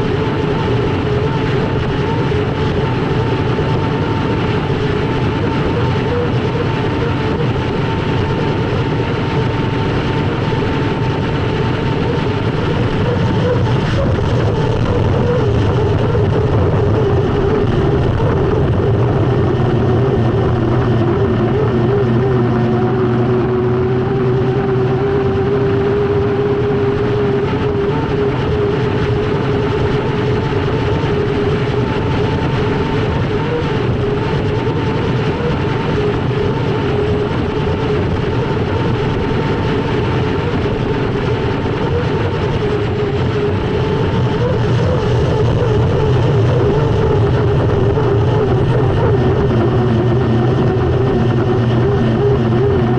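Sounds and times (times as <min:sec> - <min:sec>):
dense rushing noise: 0:00.0 - 0:52.9
turbine engine whining: 0:00.0 - 0:52.9.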